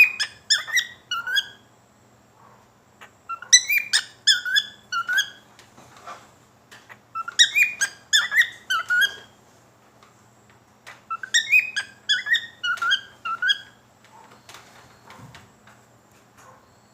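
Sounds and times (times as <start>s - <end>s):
cockatiel whistling: 0.0s - 1.6s, 3.3s - 5.4s, 7.2s - 9.3s, 11.1s - 13.8s.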